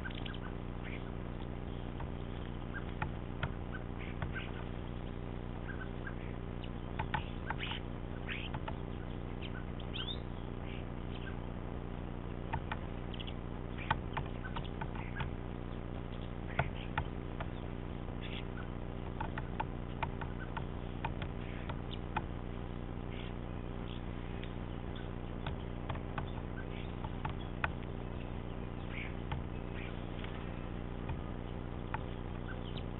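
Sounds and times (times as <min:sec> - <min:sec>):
steady low hum: 0:00.0 - 0:32.9
woodpecker tapping on feeder: 0:06.9 - 0:07.8, 0:08.4 - 0:08.8, 0:13.8 - 0:15.4, 0:16.5 - 0:17.6, 0:19.1 - 0:22.3, 0:25.0 - 0:30.4, 0:31.0 - 0:32.9.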